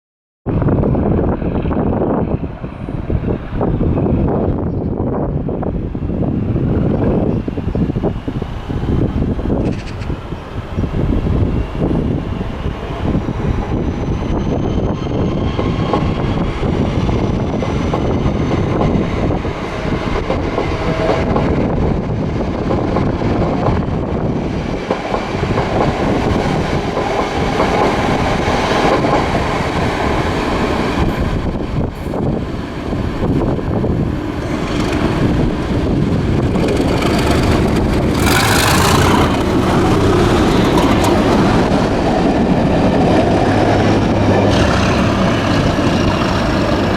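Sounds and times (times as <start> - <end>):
diesel locomotive engine: 0.5 - 46.9
train wheels clattering on rails: 9.6 - 10.2, 13.5 - 32.5, 33.2 - 46.9.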